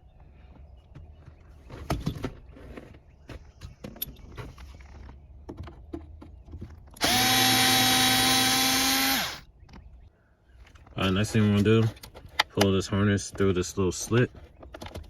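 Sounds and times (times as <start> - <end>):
power driver motor whining: 7.0 - 9.4.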